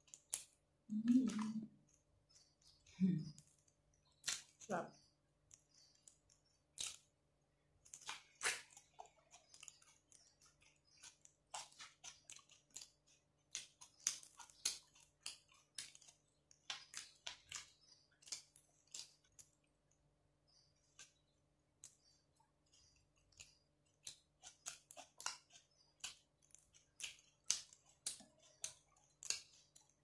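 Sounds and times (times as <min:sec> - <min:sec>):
faint close-up chewing: 0:07.8 - 0:30.0.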